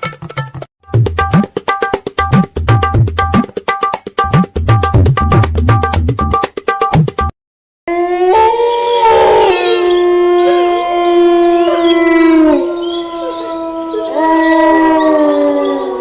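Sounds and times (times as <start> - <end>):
dogs howling: 7.9 - 16.0.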